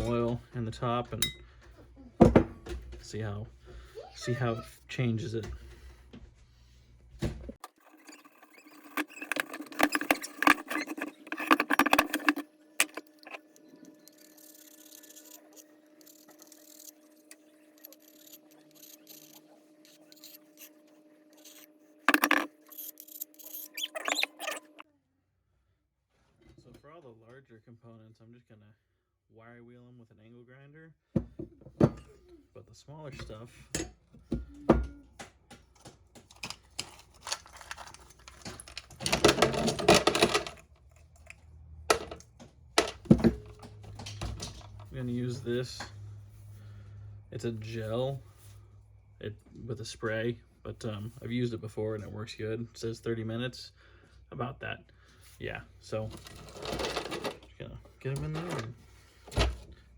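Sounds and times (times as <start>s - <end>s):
metal parts scraping and clicking: 7.6s - 20.8s, 21.4s - 24.8s, 36.3s - 42.2s, 42.8s - 45.0s, 56.1s - 57.5s.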